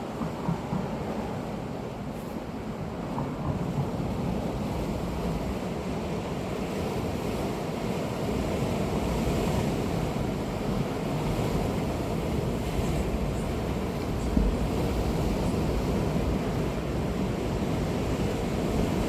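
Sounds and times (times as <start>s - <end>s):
wind rumbling on microphone: 8.3s - 19.0s.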